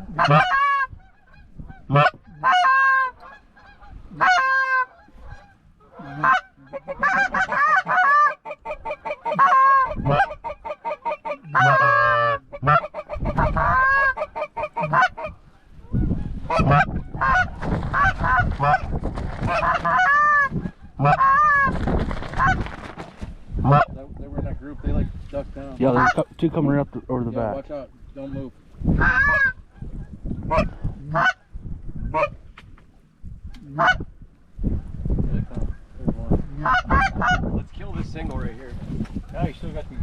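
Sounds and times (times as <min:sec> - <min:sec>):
geese honking: 0:00.0 - 0:21.7, 0:25.8 - 0:26.5, 0:30.5 - 0:31.4, 0:36.6 - 0:37.5.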